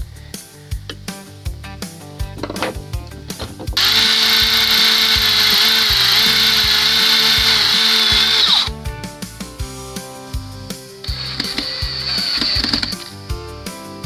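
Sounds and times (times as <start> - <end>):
power drill running: 3.5 - 8.8, 10.4 - 13.6.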